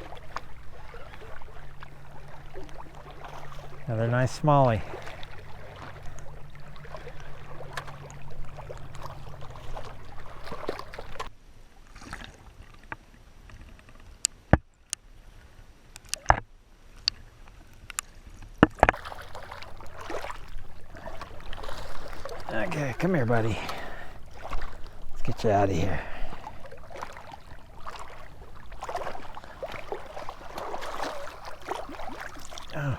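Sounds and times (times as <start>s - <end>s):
low steady hum: 0.0s - 11.9s, 18.9s - 32.9s
small waves lapping: 0.0s - 14.2s, 16.7s - 32.9s.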